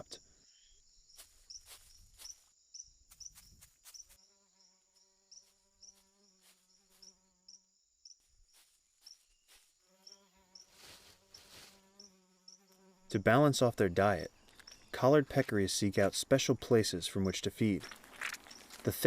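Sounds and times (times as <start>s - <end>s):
insect chirps: 0.1s - 13.6s, 14.2s - 15.5s, 17.7s - 19.0s
low insect wing buzz: 1.2s - 13.1s.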